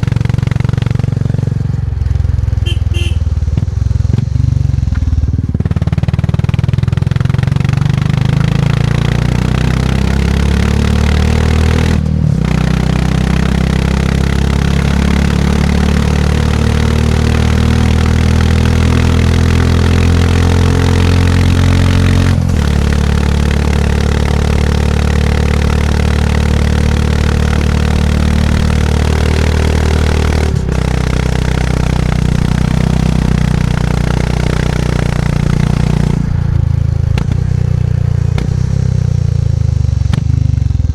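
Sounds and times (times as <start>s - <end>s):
motorcycle engine thumping: 2.1s - 5.8s, 35.4s - 38.8s, 40.0s - 40.9s.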